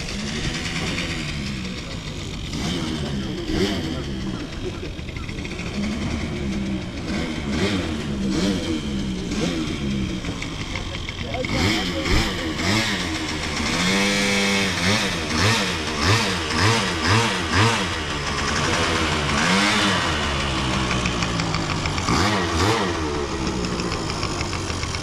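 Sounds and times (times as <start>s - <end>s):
engine revving in blips: 0.0s - 25.0s.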